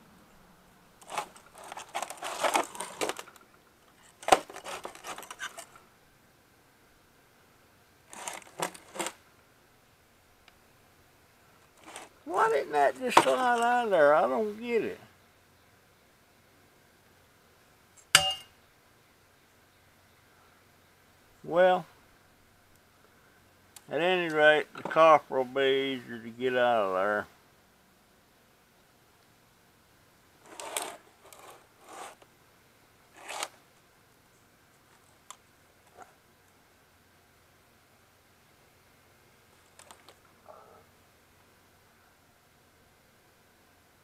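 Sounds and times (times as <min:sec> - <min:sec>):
faint background hiss: 0:00.0 - 0:44.0
scraping rustling handling noise: 0:01.0 - 0:05.8, 0:08.1 - 0:09.2, 0:11.6 - 0:13.9, 0:30.4 - 0:32.2, 0:33.1 - 0:33.6.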